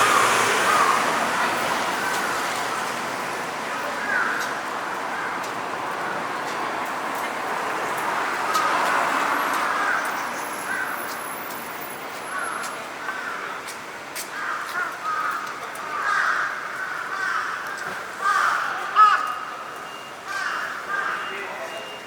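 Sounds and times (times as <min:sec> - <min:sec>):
crows cawing: 0:00.0 - 0:01.1, 0:03.7 - 0:05.5, 0:08.6 - 0:11.3, 0:12.3 - 0:13.6, 0:14.2 - 0:19.6, 0:20.3 - 0:21.3.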